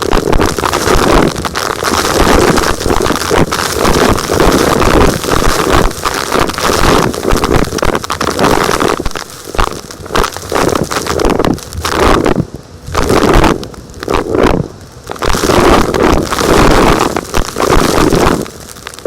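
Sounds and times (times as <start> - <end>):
gritty material crunching and scraping: 0.0 - 19.0.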